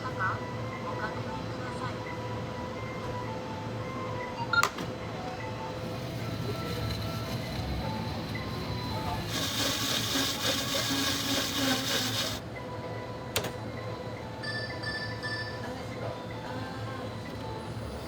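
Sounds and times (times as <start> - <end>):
faint background music: 0.0 - 18.0.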